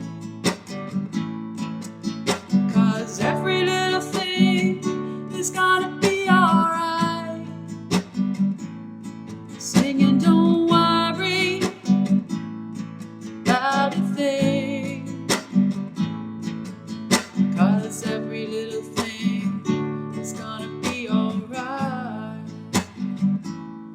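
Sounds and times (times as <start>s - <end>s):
acoustic guitar strumming: 0.0s - 23.9s
woman singing with vibrato: 2.7s - 7.6s, 9.6s - 11.9s, 13.5s - 15.2s, 17.6s - 19.6s, 20.2s - 22.5s.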